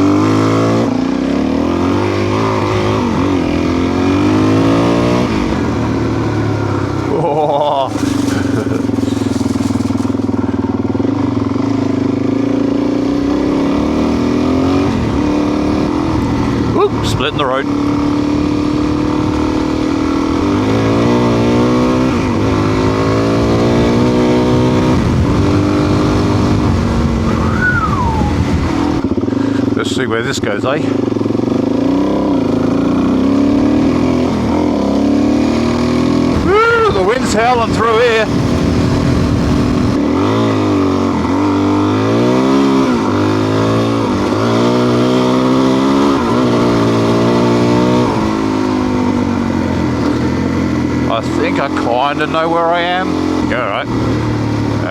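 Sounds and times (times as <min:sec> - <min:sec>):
motorcycle engine droning: 0:00.0 - 0:54.9
wind rushing: 0:24.8 - 0:29.2.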